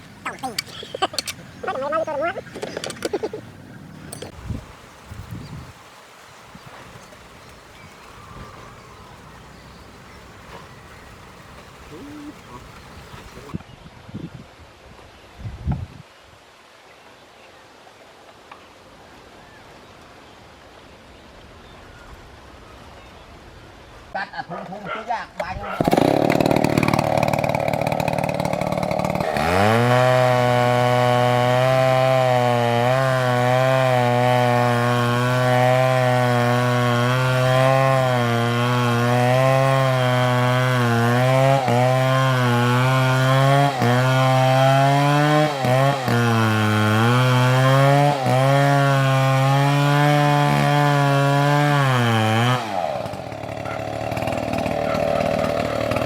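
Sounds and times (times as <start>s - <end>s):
chainsaw cutting wood: 0.0s - 4.6s, 25.4s - 56.0s.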